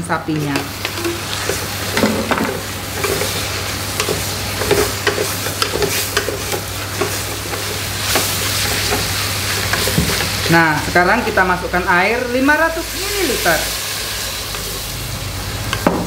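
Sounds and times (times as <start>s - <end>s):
meat sizzling in hot oil: 0.4s - 16.0s.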